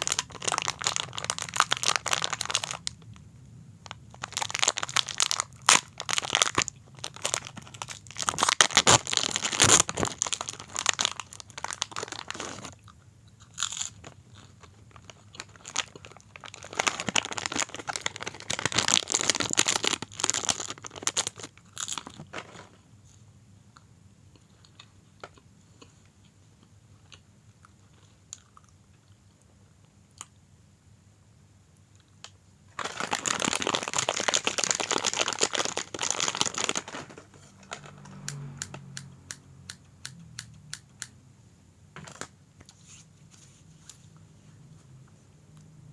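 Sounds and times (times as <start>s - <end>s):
loud crunching of snack: 0.0s - 3.0s, 4.1s - 22.2s, 32.8s - 39.0s.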